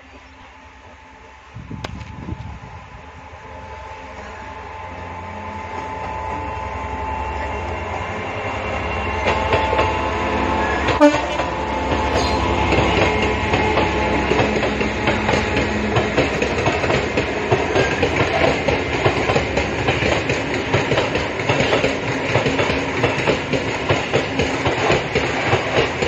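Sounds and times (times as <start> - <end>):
diesel locomotive passing: 0.0 - 26.0
wheels clickety-clack over rail joints: 7.4 - 26.0.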